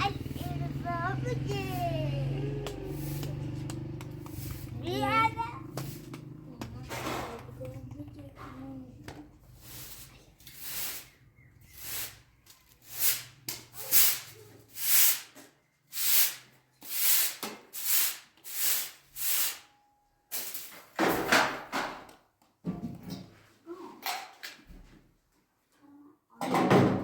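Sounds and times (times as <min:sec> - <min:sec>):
rubbing swishes: 0:00.0 - 0:03.6.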